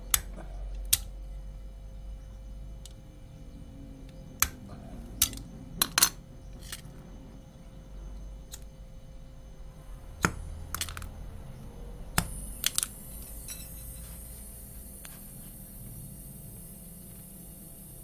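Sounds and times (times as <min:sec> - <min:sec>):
steady low hum: 0:00.0 - 0:18.0
steady high hiss: 0:11.2 - 0:18.0.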